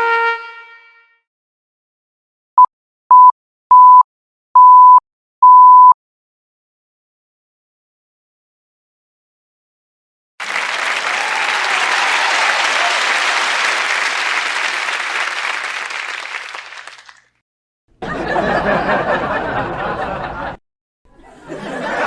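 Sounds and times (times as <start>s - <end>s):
crowd clapping: 10.4s - 17.4s.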